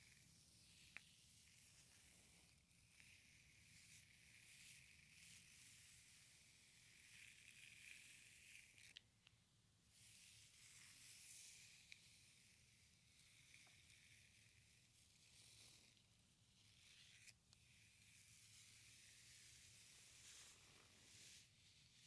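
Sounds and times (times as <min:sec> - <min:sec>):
soft swishing through hair: 0:19.0 - 0:22.0.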